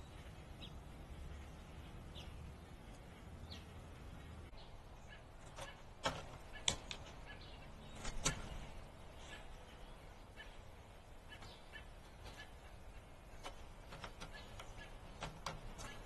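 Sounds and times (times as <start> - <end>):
bird calls: 0.0 - 16.0
sharp clicks: 5.4 - 7.2, 13.3 - 16.0.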